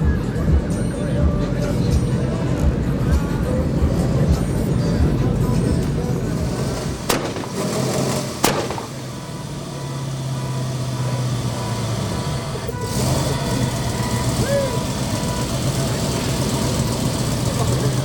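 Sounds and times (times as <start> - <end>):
vehicle engine humming: 0.0 - 18.0
sharp clicks: 7.1 - 7.6, 8.4 - 8.9.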